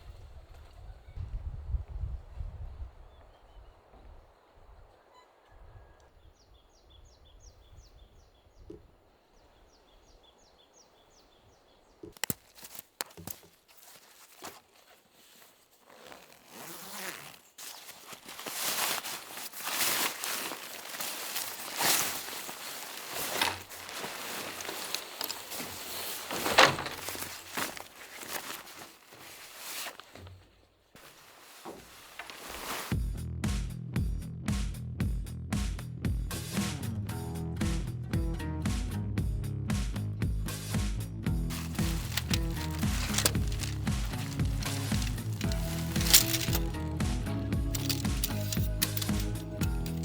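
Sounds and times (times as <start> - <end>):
rustles and knocks: 17.2 - 32.9, 41.5 - 50.0.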